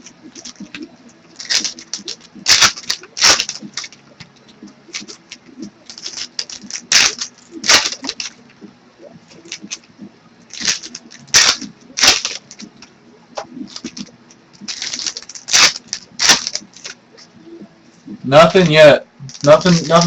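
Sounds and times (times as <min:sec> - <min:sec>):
card packs rustling: 0:00.0 - 0:08.5, 0:10.5 - 0:17.3, 0:18.5 - 0:20.0.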